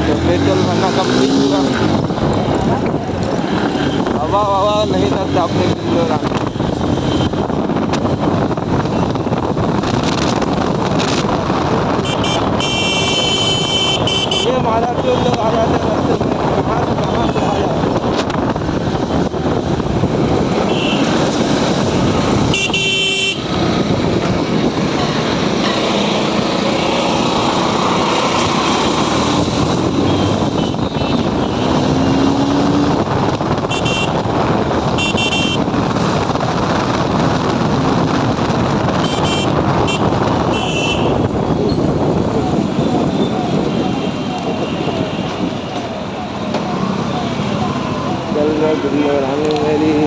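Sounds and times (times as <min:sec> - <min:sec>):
motorcycle engine and road noise: 0:00.0 - 0:50.0
vehicle horn toots: 0:12.0 - 0:14.5, 0:20.6 - 0:21.1, 0:22.5 - 0:23.5, 0:30.0 - 0:31.8, 0:33.7 - 0:34.2, 0:35.0 - 0:35.6, 0:39.0 - 0:41.3.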